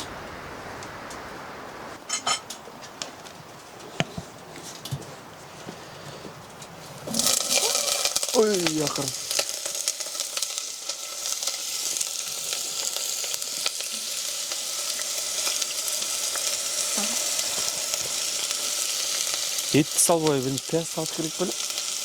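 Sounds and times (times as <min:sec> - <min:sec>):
food sizzling in a pan: 0:00.0 - 0:02.4, 0:07.0 - 0:22.0.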